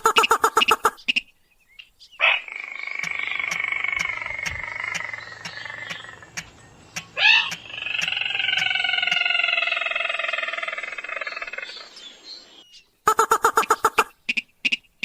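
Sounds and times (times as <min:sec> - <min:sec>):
rapid sharp bird notes: 0:00.0 - 0:01.3, 0:13.1 - 0:14.8
crake calling: 0:00.0 - 0:11.9, 0:13.1 - 0:15.0
faint ticks: 0:03.0 - 0:09.3.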